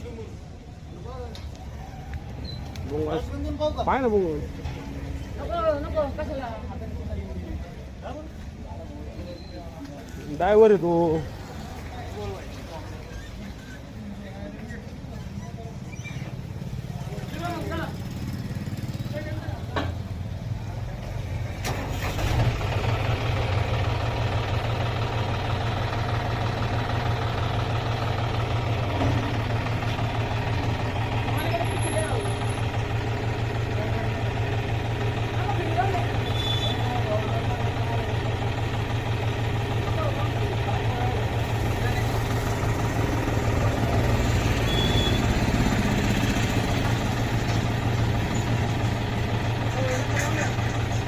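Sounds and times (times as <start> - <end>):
tractor engine running: 20.9 - 51.0.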